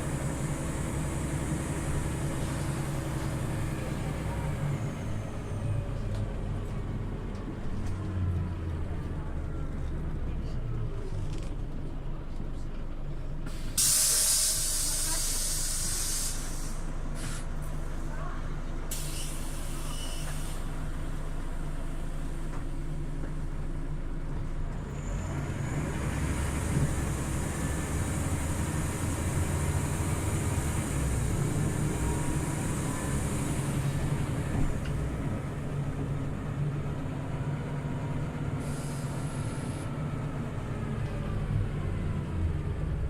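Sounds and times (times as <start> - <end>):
bus engine drone: 0.0 - 43.0
brief air hiss: 13.5 - 17.5, 18.9 - 20.7, 38.6 - 39.8.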